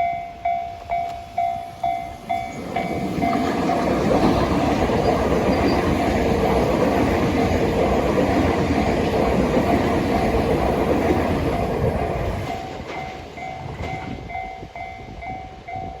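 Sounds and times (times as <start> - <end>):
level crossing warning bell: 0.0 - 6.1, 12.4 - 16.0
train wheels clattering on rails: 0.0 - 16.0.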